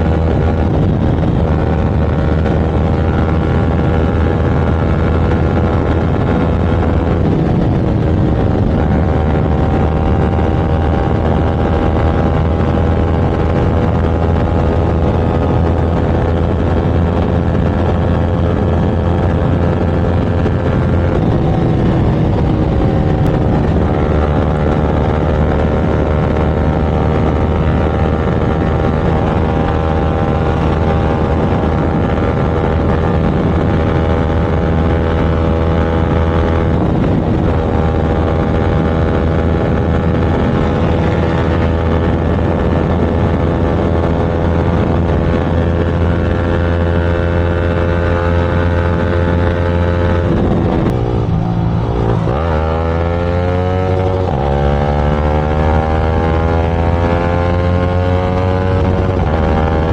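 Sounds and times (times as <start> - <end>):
motorcycle engine at speed: 0.0 - 59.9.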